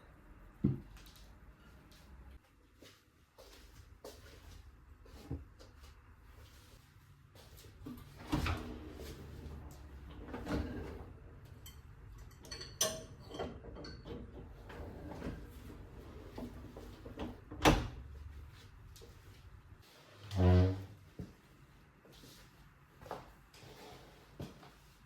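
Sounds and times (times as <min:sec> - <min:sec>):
low steady hum: 0:07.7 - 0:21.8.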